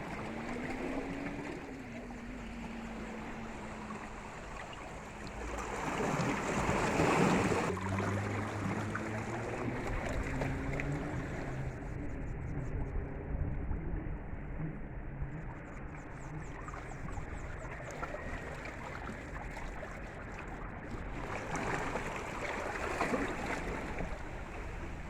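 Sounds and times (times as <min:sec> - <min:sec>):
sea waves washing onto beach: 0:00.0 - 0:11.7.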